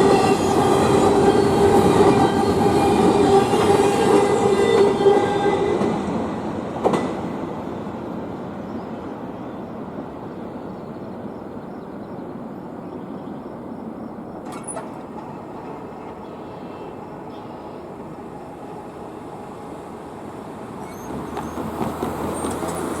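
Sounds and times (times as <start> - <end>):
freight train cars rolling on rails: 0.0 - 23.0.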